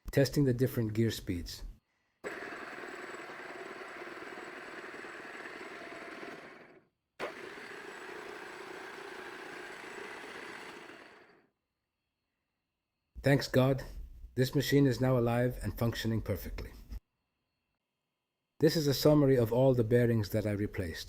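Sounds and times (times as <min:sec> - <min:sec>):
milling machine spindle running: 0:02.2 - 0:11.4.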